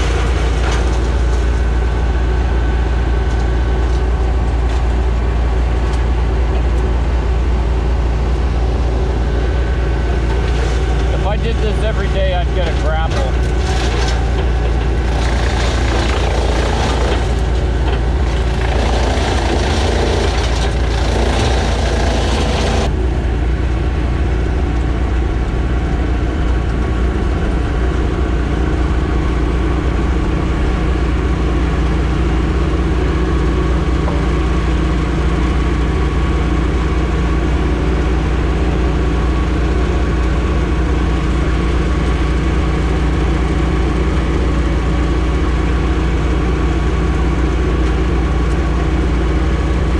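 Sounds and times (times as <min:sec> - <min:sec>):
rough noisy layer: 0:00.0 - 0:02.8, 0:06.9 - 0:24.0
large engine idling: 0:00.0 - 0:49.9.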